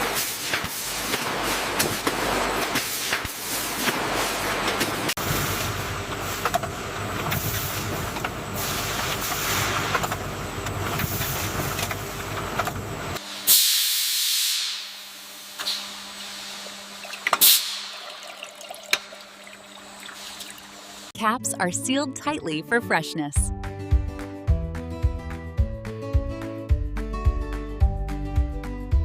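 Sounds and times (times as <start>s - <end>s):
loud hiss of air: 13.2s - 16.7s.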